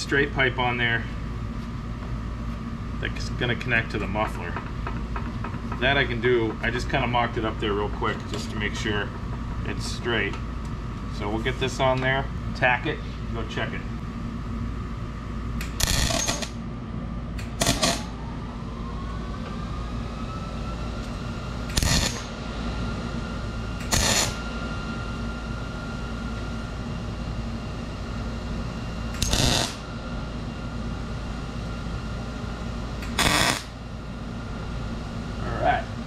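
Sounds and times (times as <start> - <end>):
low shop hum: 0.0 - 36.0
welder crackling bursts: 15.6 - 16.5, 21.7 - 22.3, 23.8 - 24.4, 29.2 - 29.8, 33.0 - 33.7.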